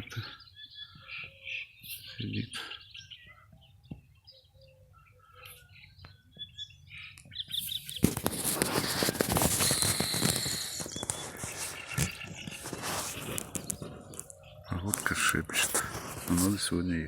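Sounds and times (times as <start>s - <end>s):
small birds chirping: 0.0s - 17.0s
loud rustling and crackling: 7.8s - 16.7s.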